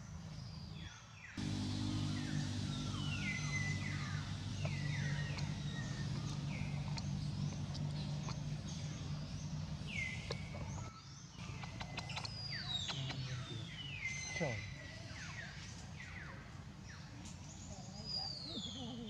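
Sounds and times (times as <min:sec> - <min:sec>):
steady low hum: 0:01.4 - 0:14.1
bird whistle calls: 0:01.5 - 0:10.4.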